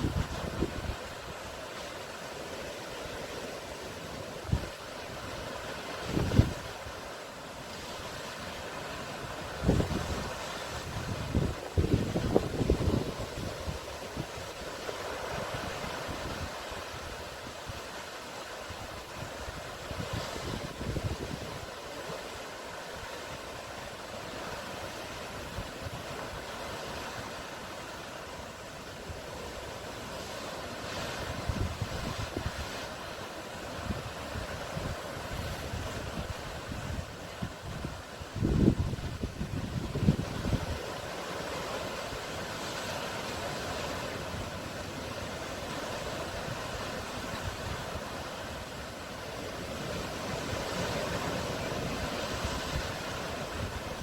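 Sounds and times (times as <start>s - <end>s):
wind buffeting microphone: 0.0s - 1.2s, 6.0s - 6.9s, 9.5s - 14.6s, 18.7s - 21.7s, 31.3s - 32.7s, 33.8s - 41.1s
sea surf washing: 0.0s - 54.0s.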